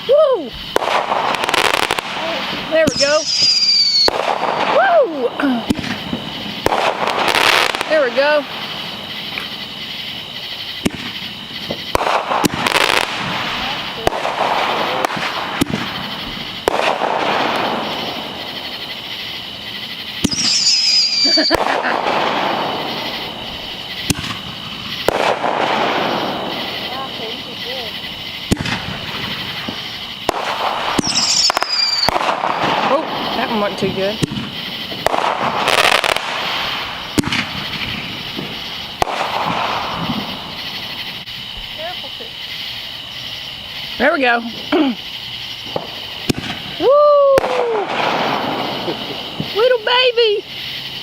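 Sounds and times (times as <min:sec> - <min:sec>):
fireworks bangs: 0:00.0 - 0:51.0
fireworks crackling: 0:00.0 - 0:51.0
high falling whistle: 0:02.9 - 0:05.3, 0:20.2 - 0:21.8, 0:31.0 - 0:32.2.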